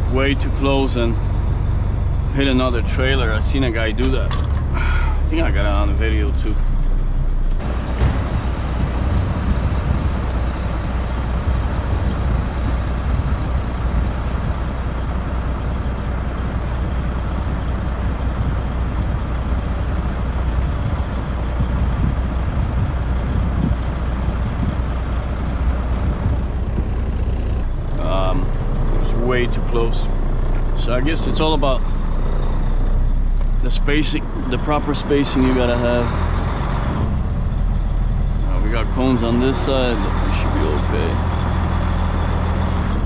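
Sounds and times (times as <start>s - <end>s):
road and cab noise: 0.0s - 43.0s
truck diesel engine running: 7.6s - 43.0s.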